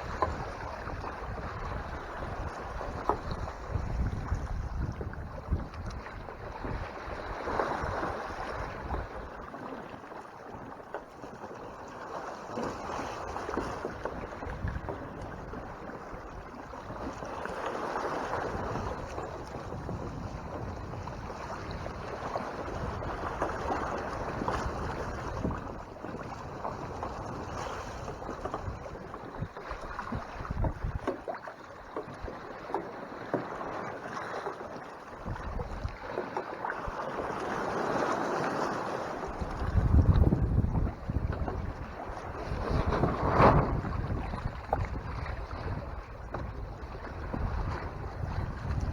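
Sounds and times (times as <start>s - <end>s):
wind gusting on microphone: 0.0s - 9.2s, 18.3s - 25.8s, 26.4s - 31.1s, 39.2s - 48.9s
water rushing along a hull: 0.0s - 48.9s.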